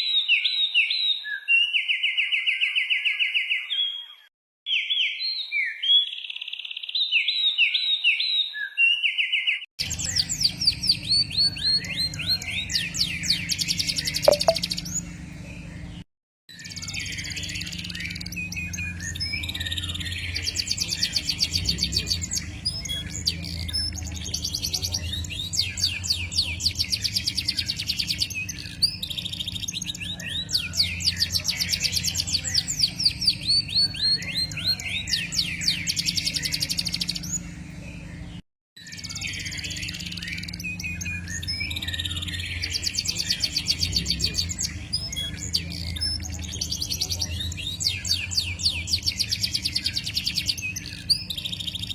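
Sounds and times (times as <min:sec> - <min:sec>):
songbird trilling: 0:09.8 - 0:15.3, 0:16.6 - 0:38.1, 0:38.8 - 0:51.9.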